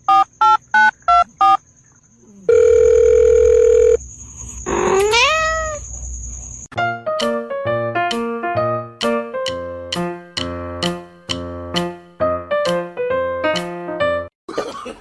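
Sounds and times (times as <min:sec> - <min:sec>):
electronic keypad beeps: 0:00.1 - 0:01.6
cat meowing: 0:04.7 - 0:05.8
piano notes: 0:06.7 - 0:14.3.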